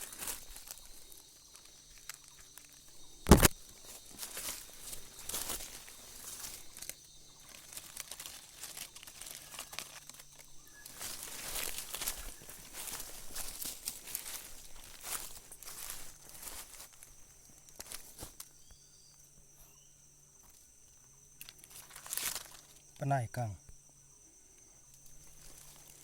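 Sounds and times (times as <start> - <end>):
footsteps through dry leaves: 0.0 - 2.5, 3.3 - 18.5, 21.6 - 22.8
loud sharp knock: 3.3 - 3.5.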